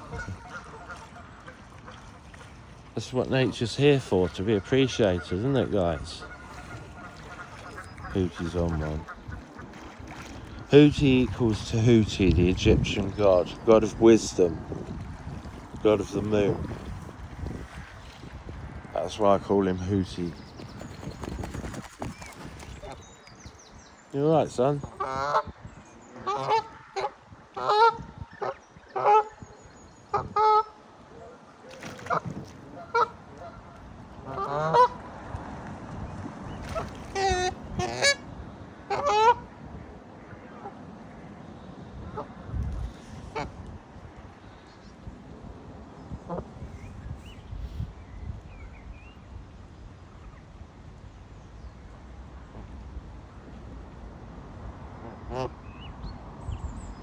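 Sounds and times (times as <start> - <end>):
geese honking: 0.0 - 2.5, 4.0 - 10.0, 24.8 - 25.5, 26.2 - 29.4, 30.1 - 30.8, 31.9 - 35.0, 36.7 - 39.6.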